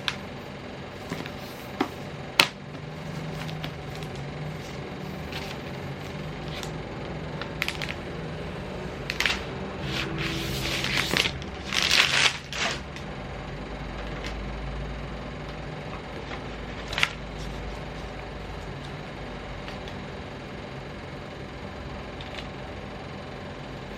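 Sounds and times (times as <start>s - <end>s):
steady low hum: 0.0s - 23.9s
packaging crinkling and rustling: 1.0s - 6.7s, 9.0s - 13.1s.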